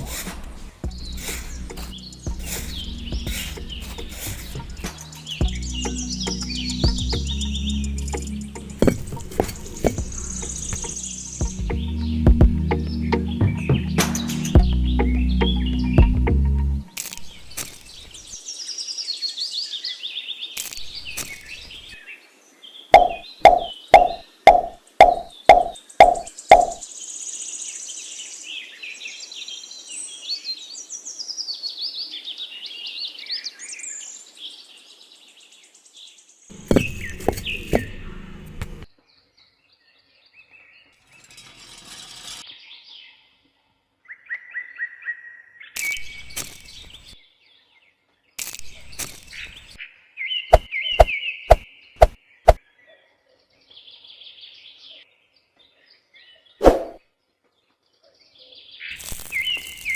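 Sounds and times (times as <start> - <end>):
birds chirping: 0.0 - 16.5, 17.3 - 28.7, 33.1 - 41.5, 45.7 - 59.9
loud knocking: 23.0 - 26.8.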